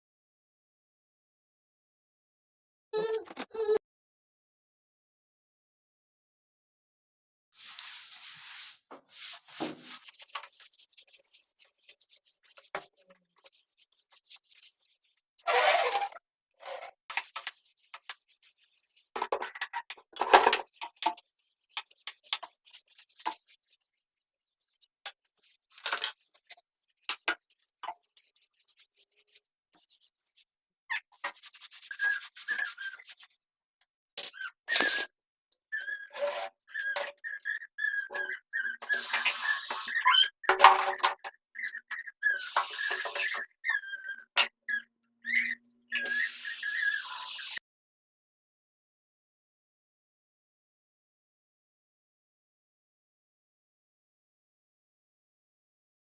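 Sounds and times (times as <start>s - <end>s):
scrubbing strokes of cleaning: 7.6s - 16.0s, 17.1s - 19.1s, 31.2s - 33.4s, 35.8s - 40.3s, 41.6s - 47.6s
faint squeaks: 35.7s - 47.6s.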